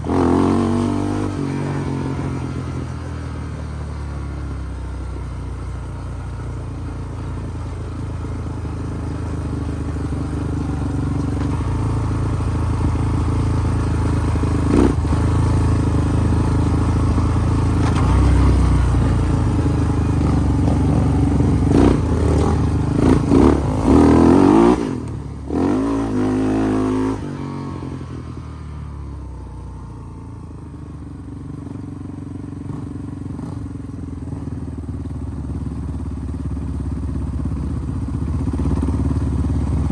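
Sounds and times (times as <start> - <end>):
off-road vehicle engine revving: 0.0 - 5.6, 6.9 - 30.3.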